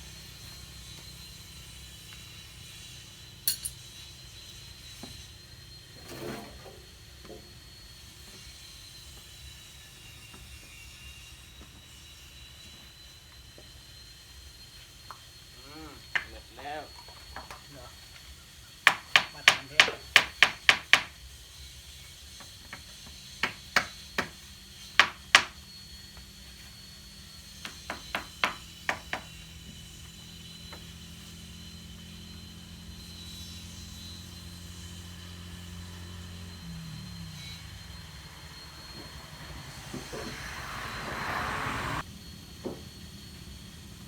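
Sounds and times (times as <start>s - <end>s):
short hissing rush: 38.6s - 42.0s.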